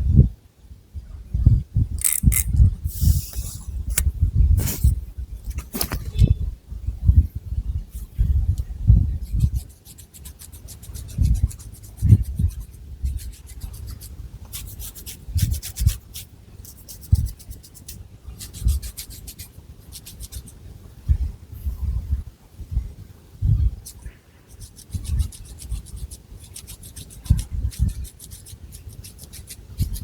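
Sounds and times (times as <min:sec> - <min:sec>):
dull low thumps and rubbing: 0:01.4 - 0:09.6
fingernails scratching hair: 0:02.0 - 0:04.9, 0:23.8 - 0:30.0.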